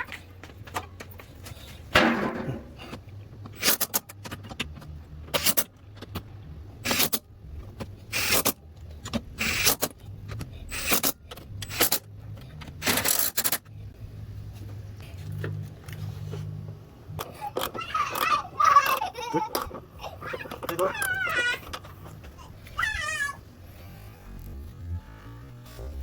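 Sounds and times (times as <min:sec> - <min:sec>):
metal parts jangling and scraping: 0:09.6 - 0:13.7
low hum: 0:21.8 - 0:26.0.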